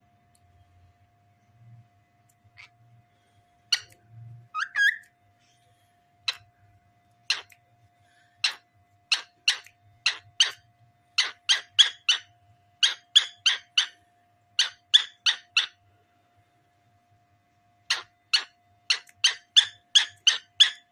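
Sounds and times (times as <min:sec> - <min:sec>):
cockatiel chirping: 0:03.7 - 0:05.1, 0:08.4 - 0:10.6, 0:11.2 - 0:14.0, 0:14.6 - 0:15.8, 0:17.9 - 0:20.9.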